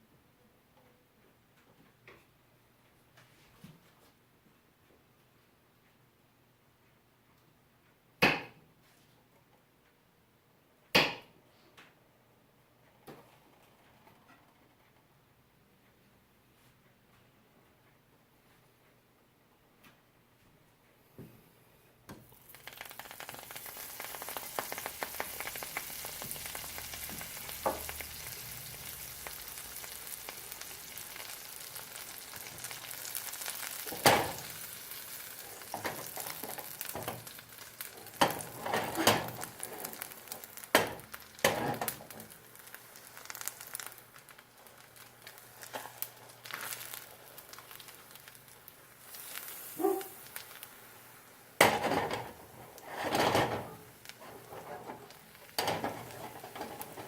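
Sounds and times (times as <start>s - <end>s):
food sizzling in hot pan: 22.2s - 57.0s.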